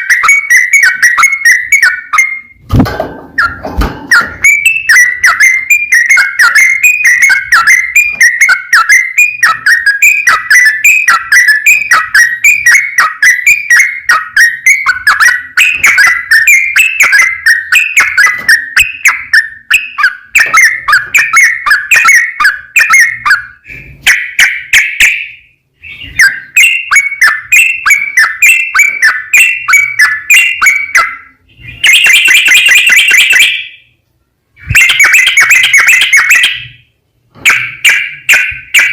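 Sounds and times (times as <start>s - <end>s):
bulbul singing whistled notes: 0.0s - 2.6s, 3.4s - 33.9s.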